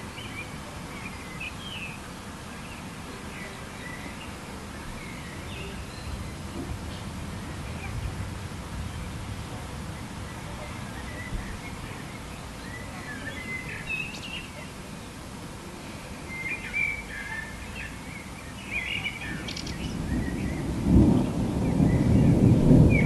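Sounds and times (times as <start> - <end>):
thunder rolling: 6.1 - 10.6, 19.3 - 23.0
birds chirping and calling: 16.3 - 20.7.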